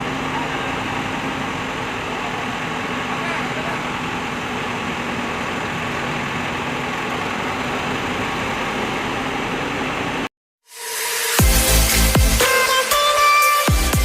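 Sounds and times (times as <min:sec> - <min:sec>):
crane engine droning: 0:00.0 - 0:10.3.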